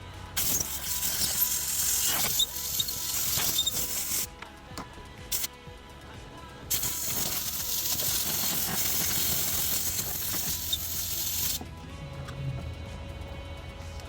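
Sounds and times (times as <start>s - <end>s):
background music: 0.0s - 14.0s
steady hiss: 6.7s - 11.6s.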